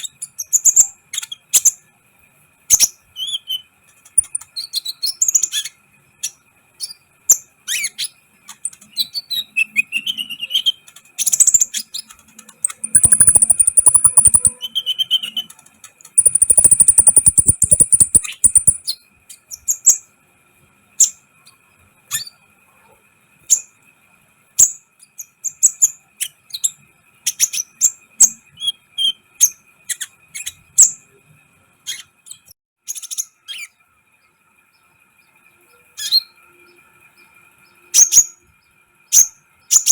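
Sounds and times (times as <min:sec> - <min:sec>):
bird chirps and ticks: 0:02.7 - 0:20.1, 0:31.9 - 0:39.9
bird buzzy trills: 0:03.4 - 0:06.4, 0:07.6 - 0:20.0
faint steady whine: 0:09.8 - 0:25.2, 0:33.6 - 0:39.7.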